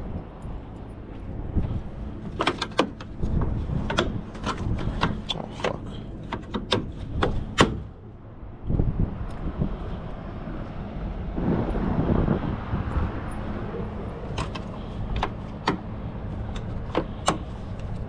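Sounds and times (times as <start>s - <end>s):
low steady rumble: 0.0s - 18.0s
sharp clicks and knocks: 2.2s - 7.9s, 14.3s - 18.0s.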